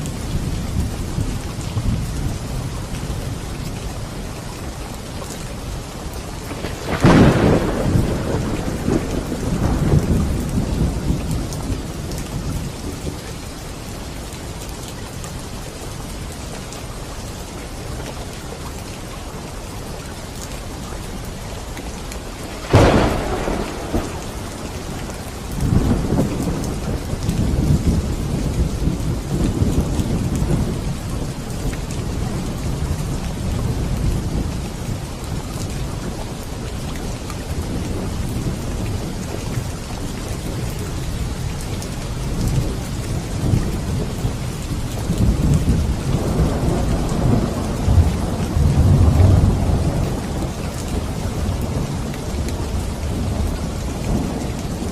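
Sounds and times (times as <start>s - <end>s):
steady rain: 0.0s - 54.9s
rolling thunder rumble: 5.9s - 13.4s, 22.4s - 36.7s, 37.5s - 54.9s
sharp thunderclaps: 6.4s - 12.9s, 22.5s - 34.6s.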